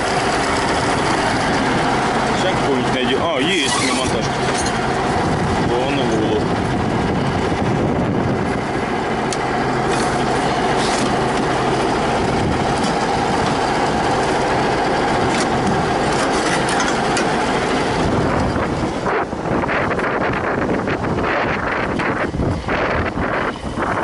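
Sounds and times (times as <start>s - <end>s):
wind gusts on microphone: 0.0s - 9.6s, 10.2s - 14.2s, 17.4s - 24.0s
diesel tractor engine idling: 0.0s - 24.0s.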